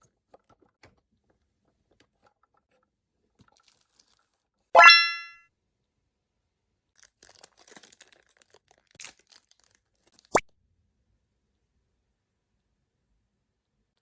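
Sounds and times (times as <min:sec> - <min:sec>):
plastic pieces crinkling and tapping: 0:03.4 - 0:04.3, 0:07.0 - 0:10.3
bright ding with upward swoop: 0:04.8 - 0:05.4.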